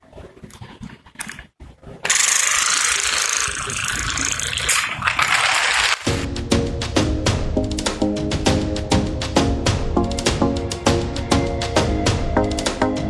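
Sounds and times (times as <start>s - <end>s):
loud mechanical rattling: 2.1s - 6.2s.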